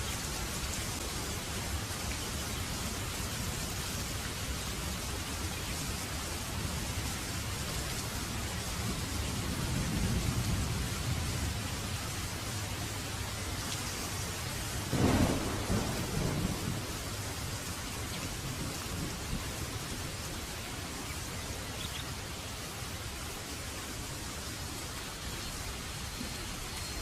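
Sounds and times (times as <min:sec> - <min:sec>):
heavy rain falling: 0:00.0 - 0:27.0
thunder clap rumbling: 0:14.9 - 0:17.6.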